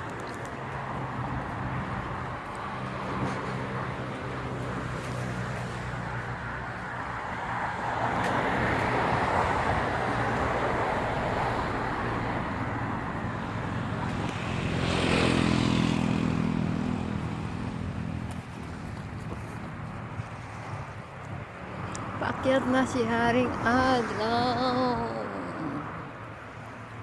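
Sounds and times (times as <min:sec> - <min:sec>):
engine passing close: 0:00.0 - 0:20.9
engine running steadily: 0:00.0 - 0:27.0.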